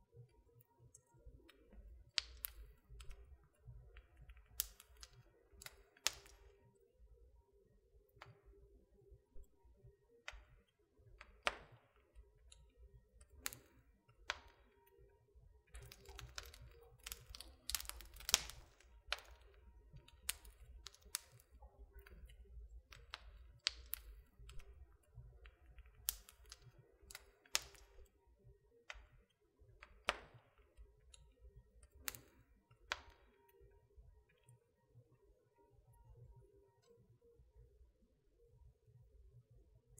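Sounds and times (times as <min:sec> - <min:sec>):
wood fire crackling: 0:01.6 - 0:06.6, 0:11.2 - 0:14.8, 0:15.6 - 0:28.1, 0:31.8 - 0:33.7.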